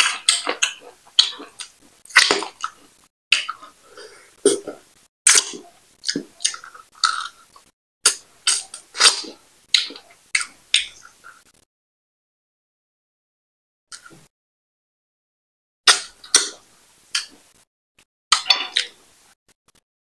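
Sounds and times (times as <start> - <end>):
wet chewing and lip smacking: 0.0 - 3.7, 5.3 - 7.7.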